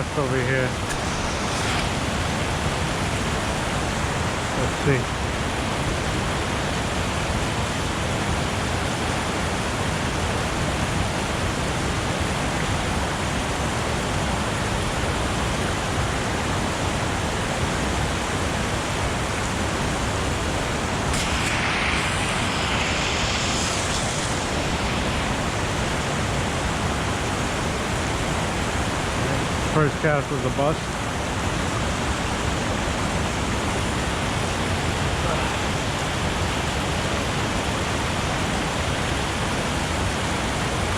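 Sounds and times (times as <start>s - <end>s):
stream water rushing: 0.0s - 40.9s
bright hiss: 0.1s - 5.0s, 19.8s - 31.0s.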